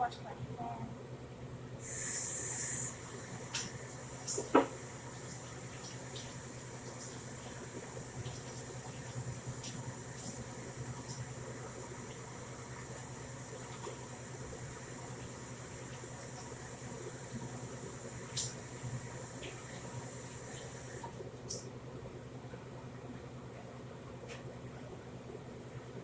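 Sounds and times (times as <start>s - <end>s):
faint hiss: 1.8s - 21.1s
kitchen tap gushing: 1.8s - 21.2s.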